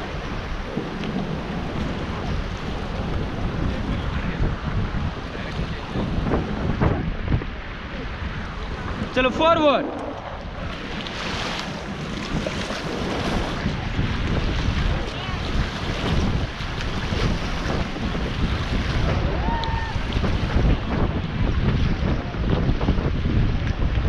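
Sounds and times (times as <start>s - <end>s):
wind buffeting microphone: 0.0s - 24.0s
river water rushing and splashing: 7.6s - 21.3s.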